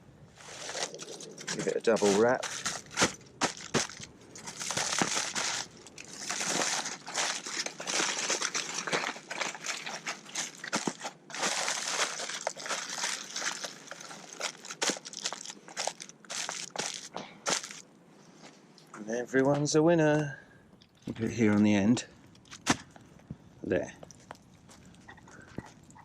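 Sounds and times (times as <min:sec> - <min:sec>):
tin foil crumpling: 0:00.4 - 0:17.8.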